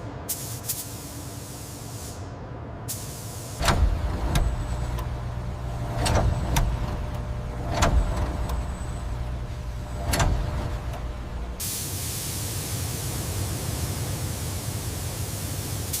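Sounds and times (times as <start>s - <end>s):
low mechanical rumble: 3.5s - 11.8s.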